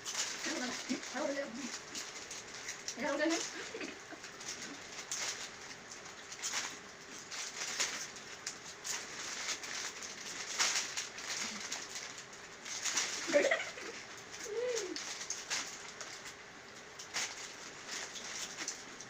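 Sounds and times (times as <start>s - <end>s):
coo-like calls: 13.3s - 15.1s.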